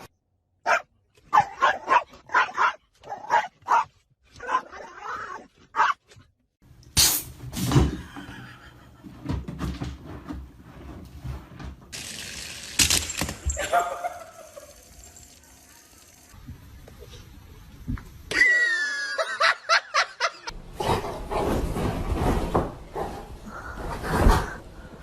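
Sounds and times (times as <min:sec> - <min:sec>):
dog barking and yelping: 0:00.6 - 0:06.0.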